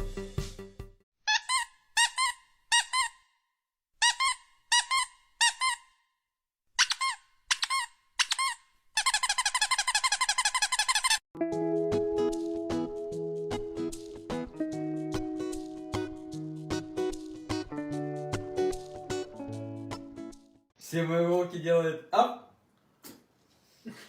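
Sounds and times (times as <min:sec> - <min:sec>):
high-pitched squeaks: 0:01.3 - 0:03.2, 0:06.8 - 0:11.2.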